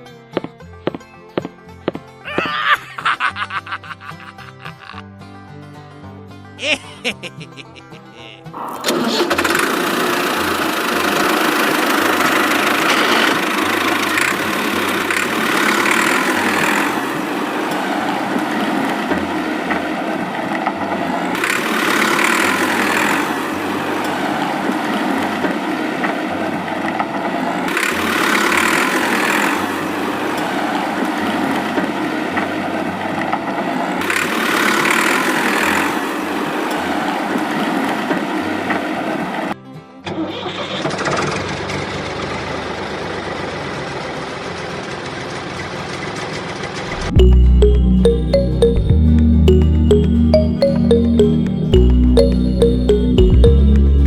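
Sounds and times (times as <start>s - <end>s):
small tractor motor running: 8.6s - 31.8s.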